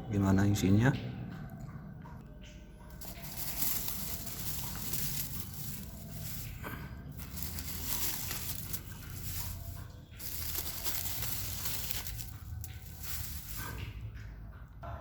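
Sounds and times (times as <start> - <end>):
hands crinkling and tearing packaging: 3.0 - 13.9.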